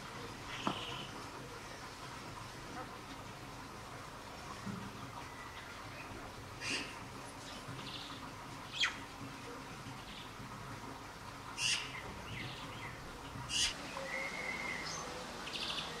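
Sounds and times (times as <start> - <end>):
bird whistle: 13.6 - 15.0.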